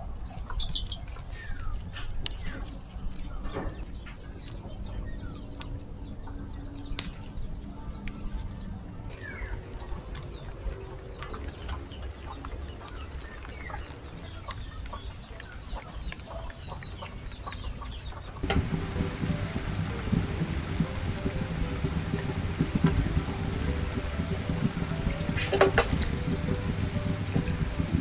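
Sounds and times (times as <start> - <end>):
birds chirping: 0.0 - 28.0
steady low rumble: 18.4 - 28.0.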